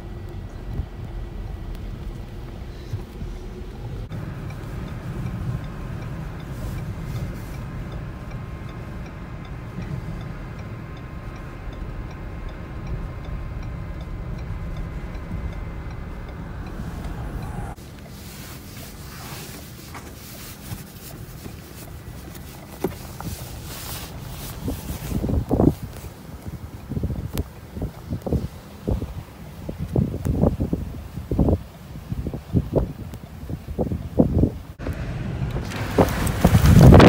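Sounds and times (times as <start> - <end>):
faint regular ticking: 0.0 - 18.1
wind and vehicle rumble: 0.0 - 37.0.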